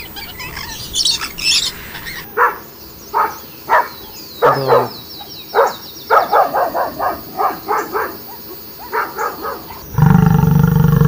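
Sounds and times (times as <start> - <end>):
dog barking: 2.3 - 9.9.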